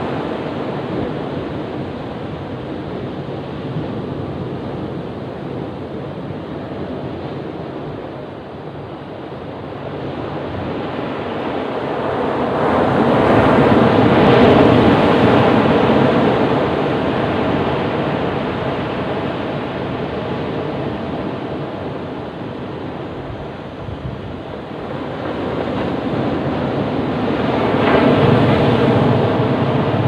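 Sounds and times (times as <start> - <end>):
ocean surf washing on beach: 0.0 - 30.0
wave breaking: 11.0 - 30.0.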